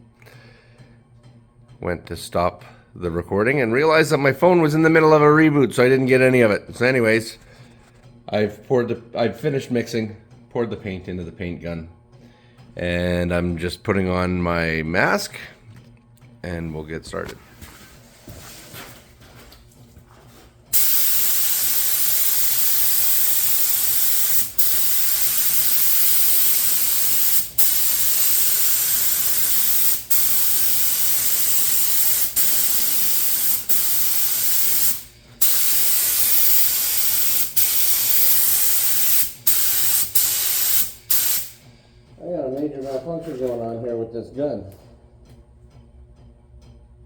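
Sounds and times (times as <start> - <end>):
paint spray gun hissing: 20.7 - 41.6.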